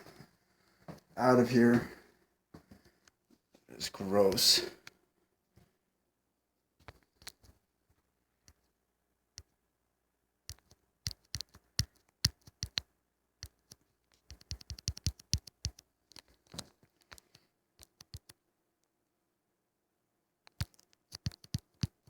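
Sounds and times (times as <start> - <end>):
sharp clicks and taps: 10.5 - 18.4, 20.4 - 22.0.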